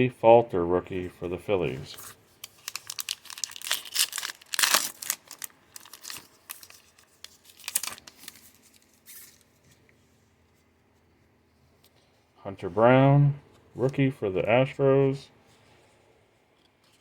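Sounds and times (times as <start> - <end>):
wrapper tearing and crinkling: 2.4 - 9.5.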